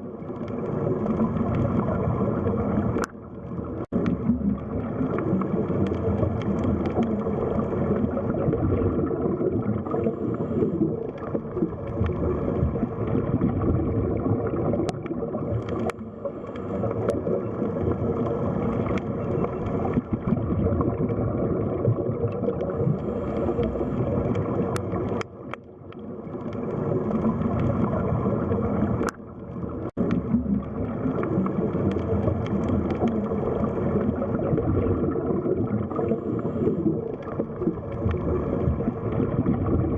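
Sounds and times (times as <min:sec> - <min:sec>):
underwater churning and gurgling: 0:00.0 - 0:39.9
faint clicks: 0:00.3 - 0:02.2, 0:02.8 - 0:08.0, 0:14.8 - 0:20.1, 0:22.3 - 0:34.3, 0:36.0 - 0:39.4.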